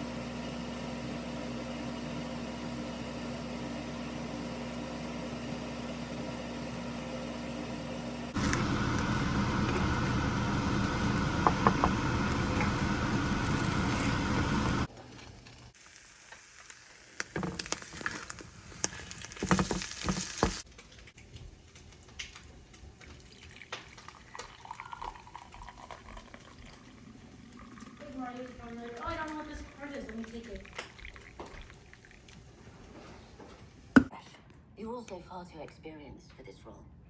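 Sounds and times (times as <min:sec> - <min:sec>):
food sizzling in a frying pan: 0:08.3 - 0:21.1.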